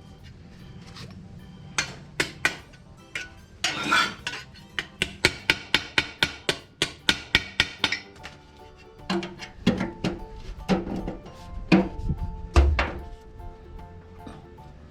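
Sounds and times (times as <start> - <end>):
background music: 0.0 - 14.9
hammer tapping sheet steel: 1.8 - 8.4.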